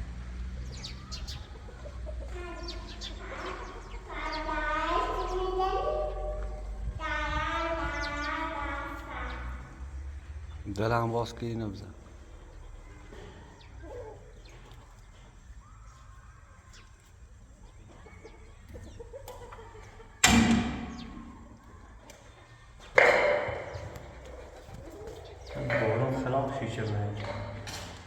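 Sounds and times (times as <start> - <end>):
loud sudden bangs: 20.2 - 21.6.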